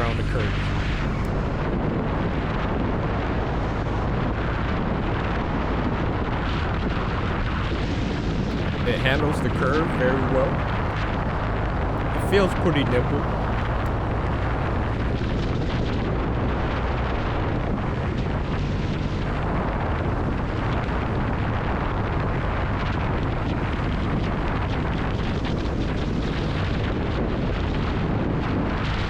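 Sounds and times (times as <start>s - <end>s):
motorcycle engine rumble: 0.0s - 1.3s.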